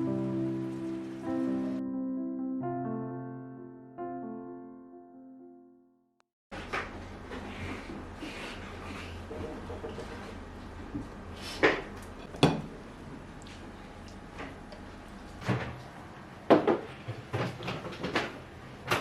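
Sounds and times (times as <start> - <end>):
dishes knocking and clinking: 11.7 - 12.8, 16.5 - 19.0.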